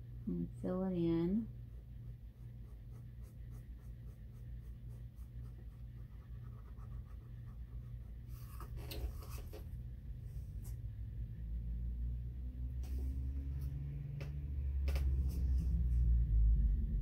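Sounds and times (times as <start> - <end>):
steady low hum: 0.0 - 17.0
marker scribbling on cardboard: 2.2 - 9.6.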